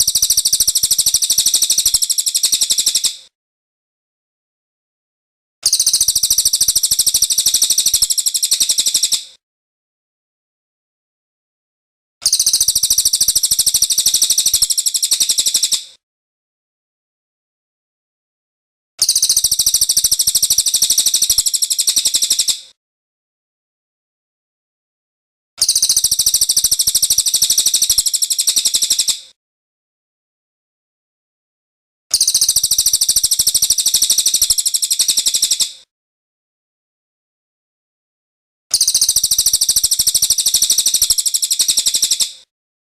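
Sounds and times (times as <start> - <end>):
bird trilling song: 5.6 - 9.2, 12.2 - 15.8, 19.0 - 22.6, 25.6 - 29.2, 32.1 - 35.7, 38.8 - 42.3.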